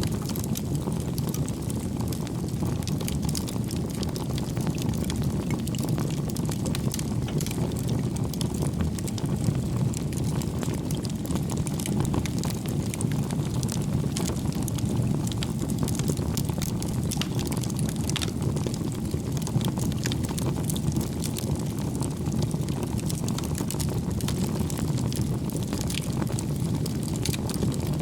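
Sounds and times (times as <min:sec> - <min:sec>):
wood fire crackling and popping: 0:00.0 - 0:28.0.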